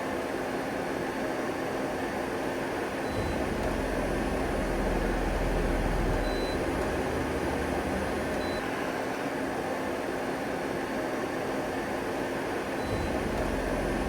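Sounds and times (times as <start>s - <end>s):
lathe running with mechanical hum: 3.2s - 10.1s, 12.5s - 14.0s.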